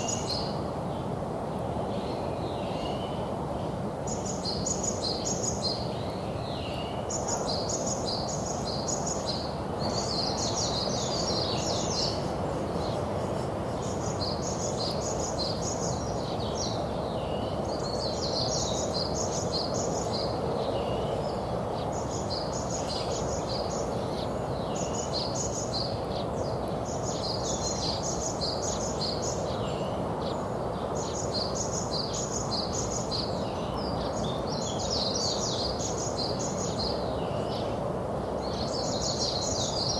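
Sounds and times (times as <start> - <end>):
small songbirds chirping: 0.0 - 39.9.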